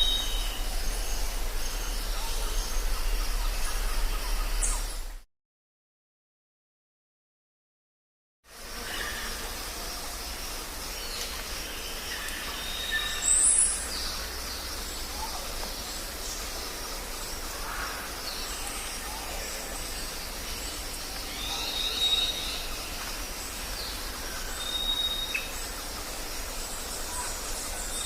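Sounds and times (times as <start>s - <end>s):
background hiss: 0.0s - 5.2s, 8.5s - 28.0s
birds whistling and chirping: 0.0s - 5.2s, 11.8s - 14.2s, 21.1s - 22.9s, 23.8s - 25.7s.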